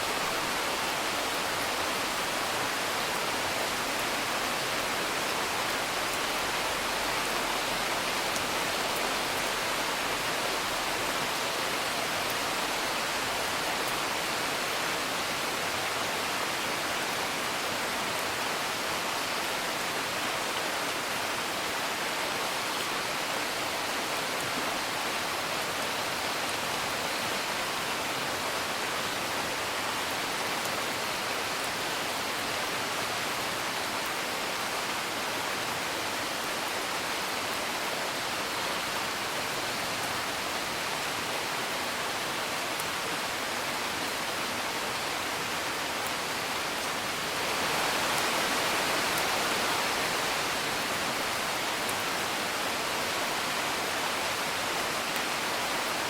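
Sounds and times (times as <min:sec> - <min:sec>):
rain hiss: 0:00.0 - 0:56.0.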